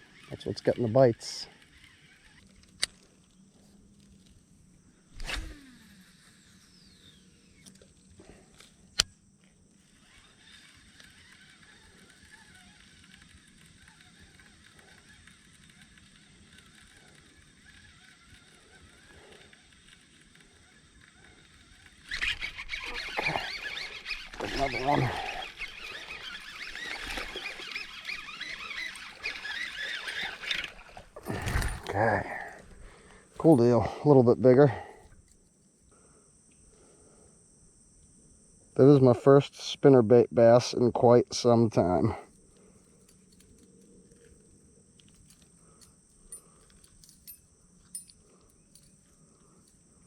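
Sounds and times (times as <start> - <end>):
high-pitched insect chorus: 0.0 - 50.0
birds chirping: 22.0 - 35.0.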